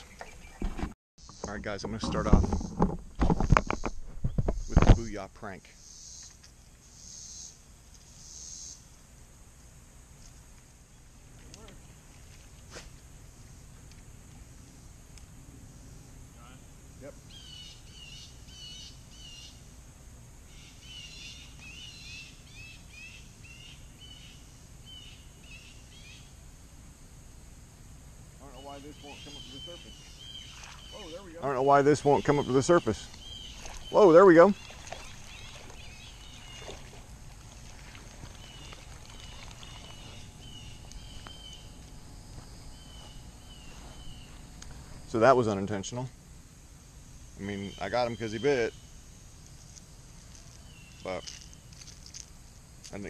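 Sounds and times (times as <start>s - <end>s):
low outdoor background noise: 0.0s - 53.0s
bird calling: 16.4s - 19.7s, 20.4s - 26.3s, 28.4s - 45.4s, 47.4s - 49.1s, 50.3s - 52.0s.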